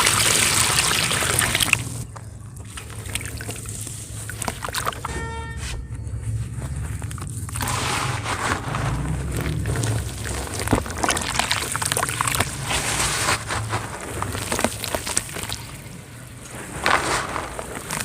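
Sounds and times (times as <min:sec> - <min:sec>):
wet cement sloshing: 0:00.0 - 0:05.1, 0:06.2 - 0:18.0
cement crumbling crackles: 0:06.2 - 0:18.0.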